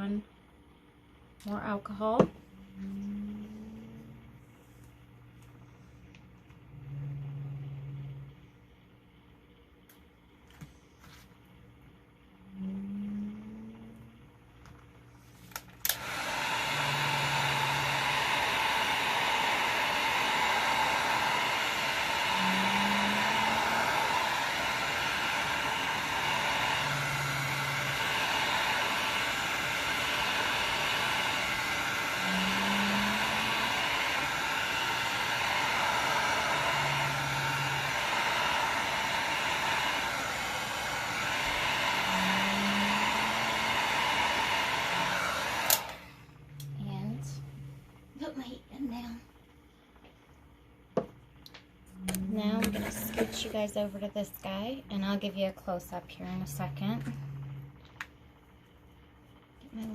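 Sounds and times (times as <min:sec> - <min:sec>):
low hum: 0:00.0 - 0:43.6, 0:44.8 - 0:59.9
heat gun blowing: 0:15.8 - 0:46.7.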